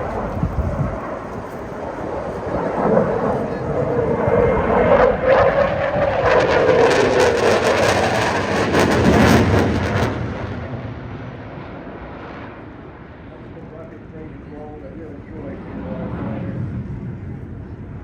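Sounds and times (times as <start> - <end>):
jet engines flying past: 0.0 - 18.0.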